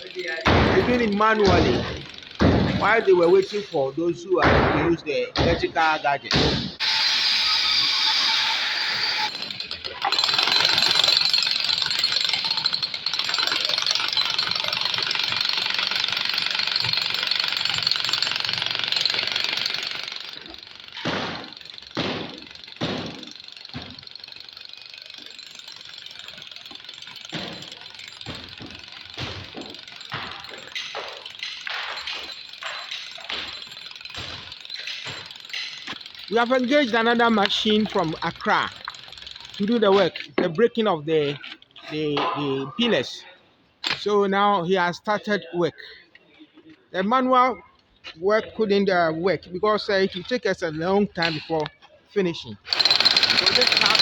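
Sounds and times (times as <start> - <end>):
jackhammer breaking concrete: 0.0 - 5.6, 6.4 - 40.4, 52.7 - 54.0.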